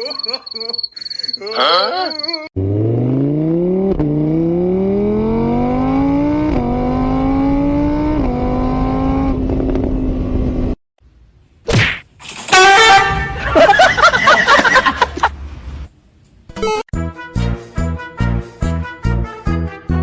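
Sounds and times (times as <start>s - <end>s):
car engine accelerating: 2.6s - 10.8s.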